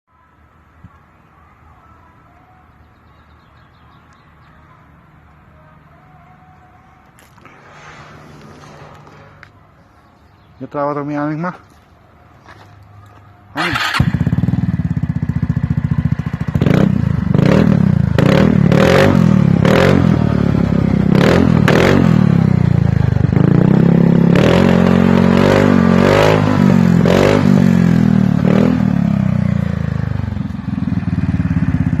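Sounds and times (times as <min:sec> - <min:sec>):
scooter engine idling and revving: 0:13.1 - 0:32.0.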